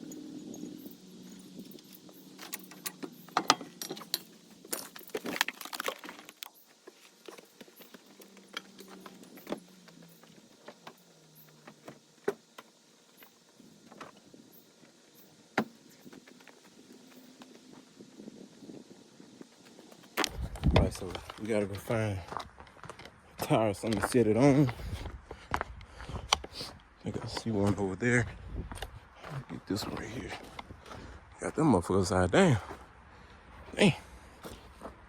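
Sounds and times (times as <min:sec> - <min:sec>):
metal parts and tools clinking: 0:00.0 - 0:10.3.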